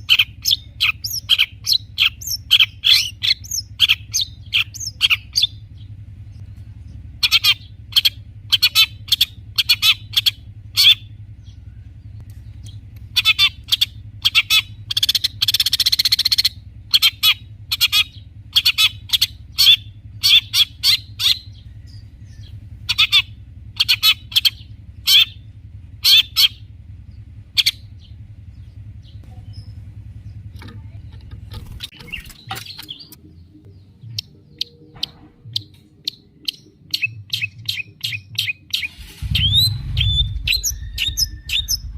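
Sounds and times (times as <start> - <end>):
bird singing harsh notes: 0.0 - 41.9.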